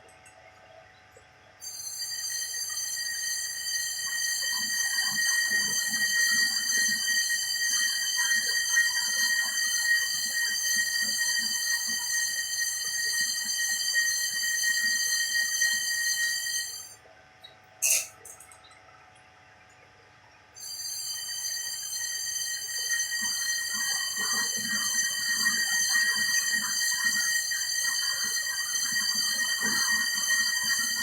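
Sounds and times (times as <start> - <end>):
cutting machine high-pitched whine: 20.6 - 31.0.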